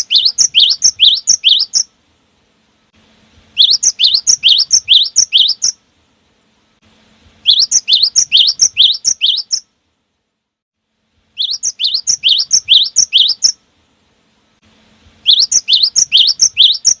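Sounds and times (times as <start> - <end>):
bird singing whistled notes: 0.0 - 1.9, 3.5 - 5.8, 7.4 - 9.7, 11.3 - 13.6, 15.2 - 17.0.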